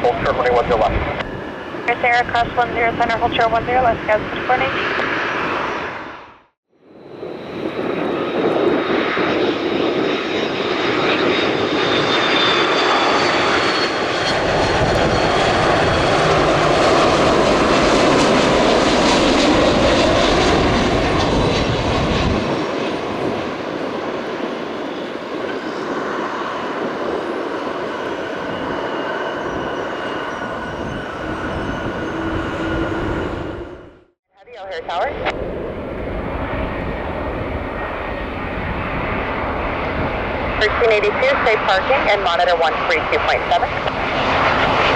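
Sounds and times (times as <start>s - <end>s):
high engine whine: 0.0s - 34.2s
jet airliner passing: 0.0s - 44.9s.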